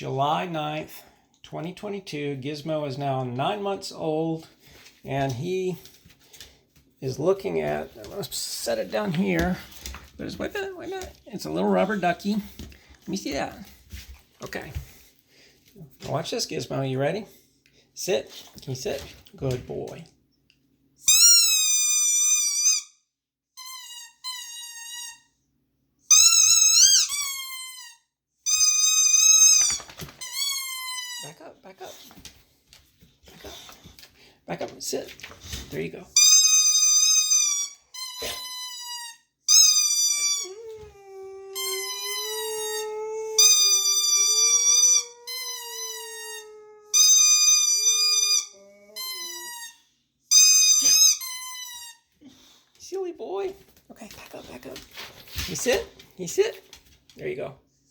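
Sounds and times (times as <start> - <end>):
rubber duck squeaky toy squeals: 21.1 - 23.0, 23.6 - 25.3, 26.1 - 31.4, 36.2 - 40.7, 41.6 - 52.1
dog howling: 40.2 - 49.7.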